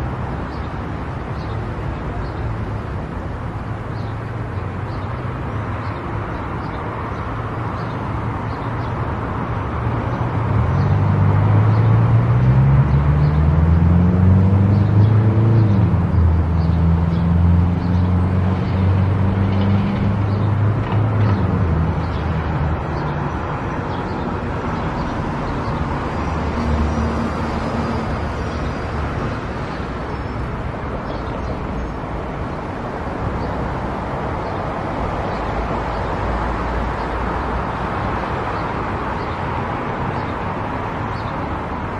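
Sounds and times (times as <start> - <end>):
tyre noise on road: 0.0 - 41.9
car engine accelerating: 10.8 - 21.9.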